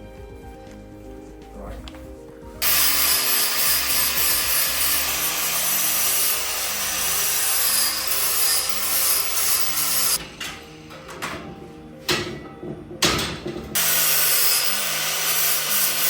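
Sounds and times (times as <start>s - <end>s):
grinder grinding metal: 2.6s - 11.0s, 13.4s - 16.0s.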